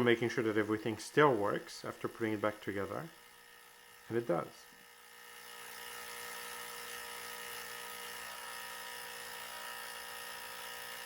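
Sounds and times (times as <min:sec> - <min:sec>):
espresso machine pump buzzing: 0:00.0 - 0:11.0.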